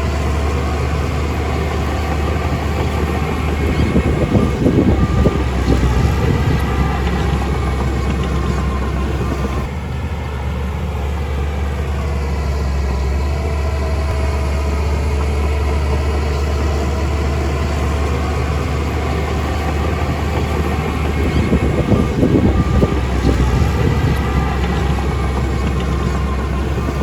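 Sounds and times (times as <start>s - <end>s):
heavy machine engine humming: 0.0s - 27.0s.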